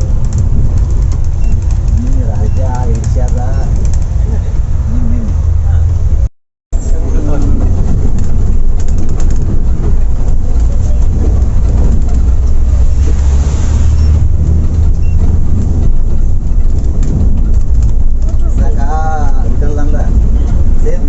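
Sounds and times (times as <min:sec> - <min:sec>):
coach engine and road rumble: 0:00.0 - 0:21.0.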